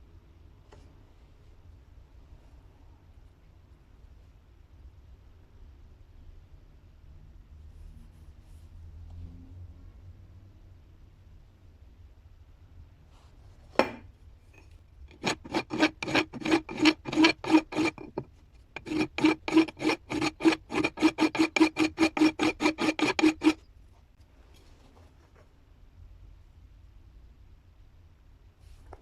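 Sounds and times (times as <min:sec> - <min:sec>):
rhythmic rasping strokes: 0:15.1 - 0:23.6.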